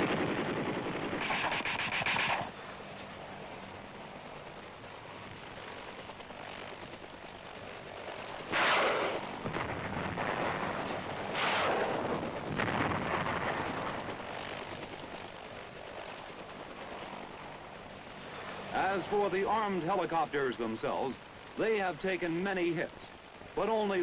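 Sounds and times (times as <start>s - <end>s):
steady rushing background: 0.0s - 24.0s
explosions: 8.5s - 14.1s.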